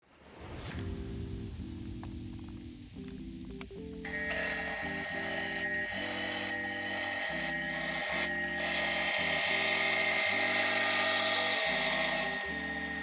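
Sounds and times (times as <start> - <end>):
background music: 0.5 - 13.0
milling machine whine: 4.0 - 13.0
hiss: 4.1 - 13.0.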